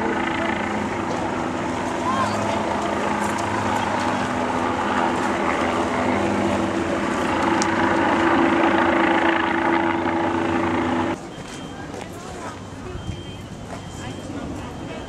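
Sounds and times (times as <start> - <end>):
engine droning hum: 0.0 - 11.4.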